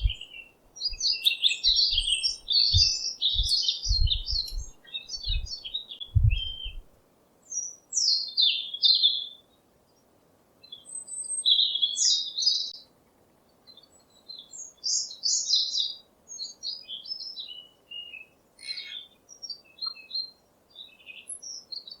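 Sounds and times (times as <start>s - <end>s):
low thumps: 0.0s - 0.2s, 1.9s - 6.9s.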